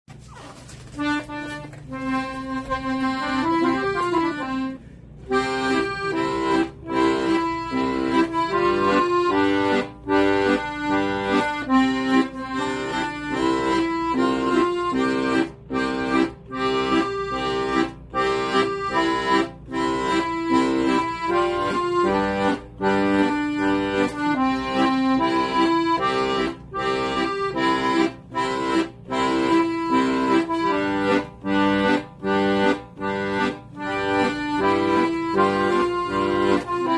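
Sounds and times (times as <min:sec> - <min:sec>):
accordion melody with bass: 0:00.1 - 0:36.9.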